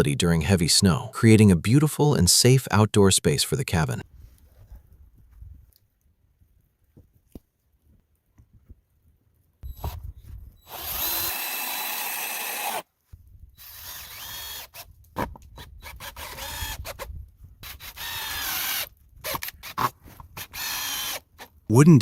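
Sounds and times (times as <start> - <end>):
power drill drilling into wood: 10.6 - 12.8, 13.6 - 14.9, 15.6 - 21.5.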